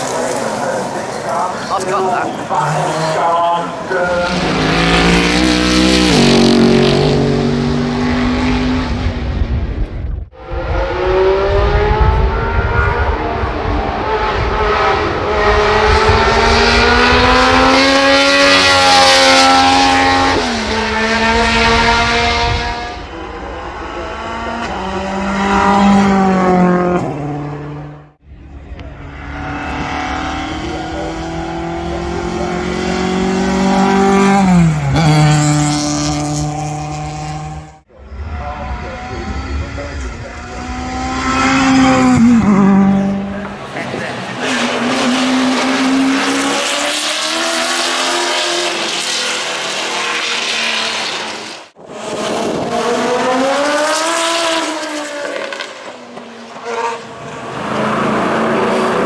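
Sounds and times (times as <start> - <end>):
racing car engine at full throttle: 0.0 - 59.0.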